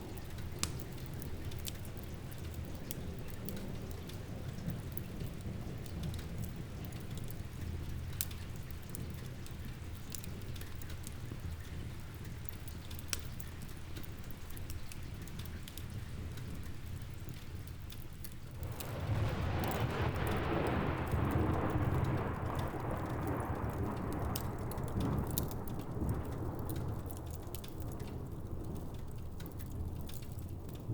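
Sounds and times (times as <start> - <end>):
log fire crackling: 0.0 - 30.9
steady rain: 0.0 - 30.9
thunder rolling: 18.5 - 28.9.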